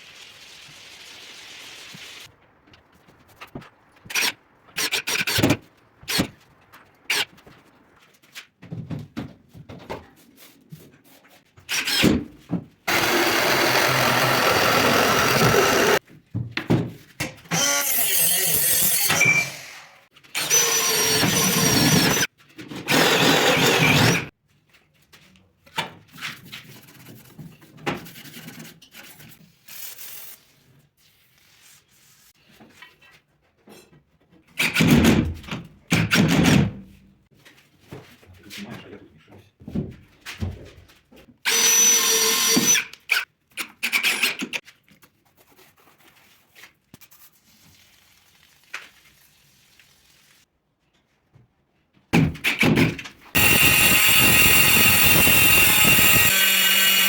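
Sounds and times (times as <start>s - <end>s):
power tool cutting tile: 12.9s - 16.0s, 17.5s - 19.7s, 20.4s - 24.3s, 41.5s - 42.9s, 53.4s - 57.0s.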